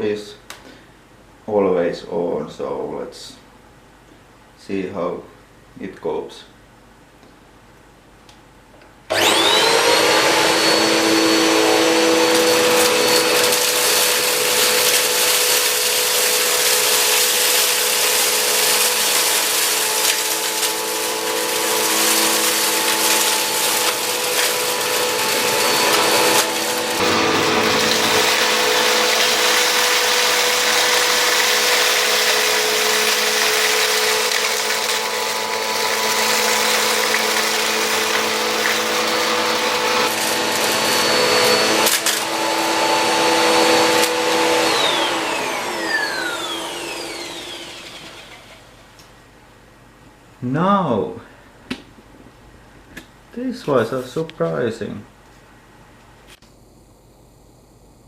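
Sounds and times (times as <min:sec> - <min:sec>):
vacuum cleaner motor whine: 0:09.1 - 0:49.0.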